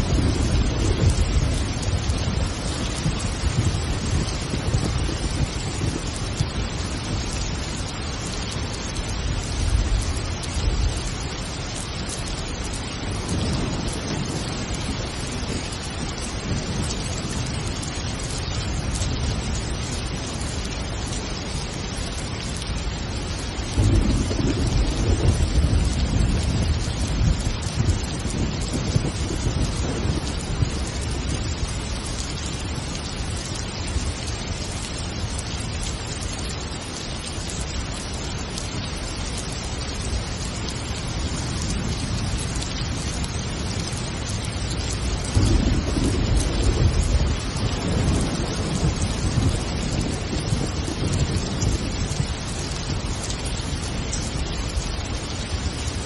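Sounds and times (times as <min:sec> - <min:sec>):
thunder rumbling: 0:00.0 - 0:20.5, 0:23.1 - 0:34.1, 0:41.3 - 0:53.1
steady rain falling: 0:00.0 - 0:56.0.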